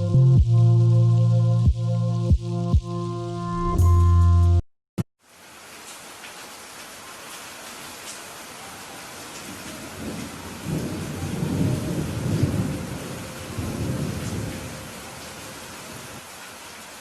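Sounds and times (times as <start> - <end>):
rain falling: 5.2 - 17.0
thunder rolling: 9.5 - 16.2.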